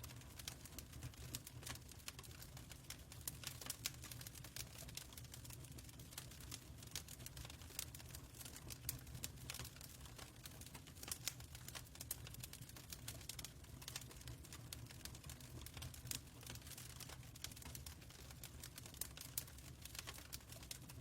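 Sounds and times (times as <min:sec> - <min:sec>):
fire crackling and popping: 0:00.0 - 0:21.0
low rumble of fire: 0:00.0 - 0:21.0.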